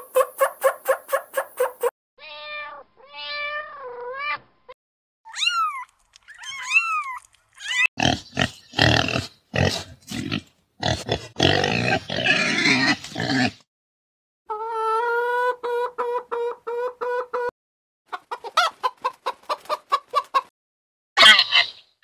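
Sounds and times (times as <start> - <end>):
cat meowing: 2.2 - 4.4
piglets oinking: 8.0 - 13.6
turkey gobbling: 21.2 - 21.8.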